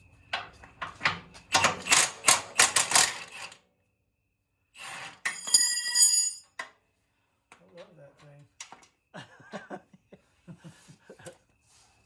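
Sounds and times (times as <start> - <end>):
ringing metal clink: 5.3 - 6.6.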